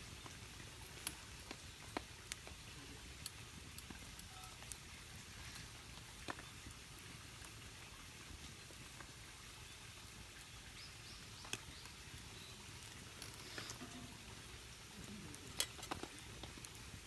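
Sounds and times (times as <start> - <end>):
light ticks: 11.4 - 11.9.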